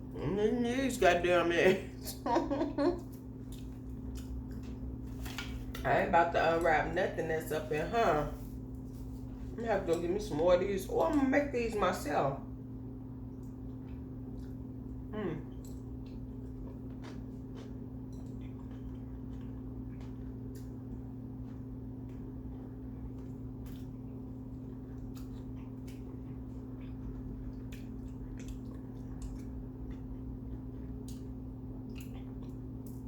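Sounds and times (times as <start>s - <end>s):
steady low hum: 0.0s - 33.0s
close-up chewing: 3.0s - 5.8s, 13.2s - 33.0s
wet mouth clicks and smacks: 31.0s - 33.0s.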